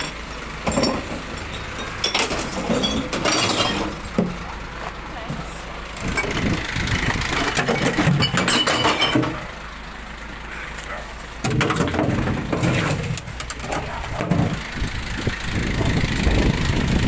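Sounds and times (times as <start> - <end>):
glass bottles clattering and smashing: 0.0 - 4.2, 7.4 - 9.5
diesel engine idling: 0.0 - 17.0.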